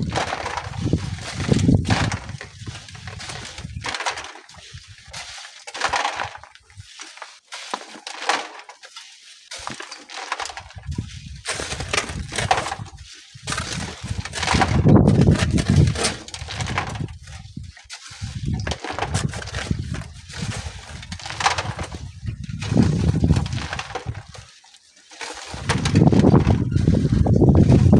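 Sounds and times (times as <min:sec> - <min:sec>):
wind buffeting microphone: 0:00.0 - 0:04.0, 0:10.6 - 0:24.4, 0:25.5 - 0:27.9
sand being shovelled: 0:00.0 - 0:27.9.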